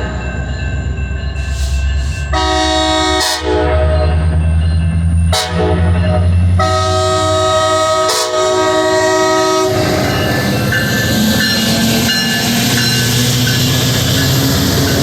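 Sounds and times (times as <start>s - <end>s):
diesel locomotive engine rumble: 0.0s - 15.0s
train horn blasts: 2.3s - 4.3s, 5.3s - 10.1s.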